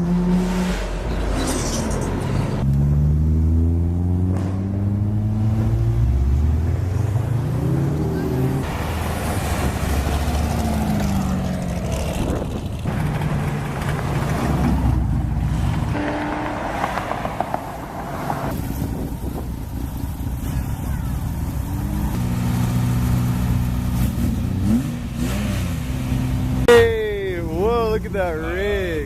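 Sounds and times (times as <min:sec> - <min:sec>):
cars revving past: 0:02.2 - 0:19.1, 0:21.5 - 0:26.7.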